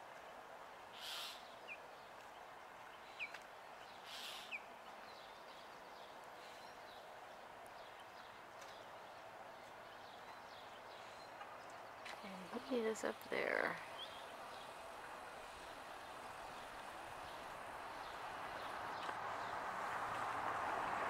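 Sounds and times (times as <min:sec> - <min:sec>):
steady low hiss: 0:00.0 - 0:21.0.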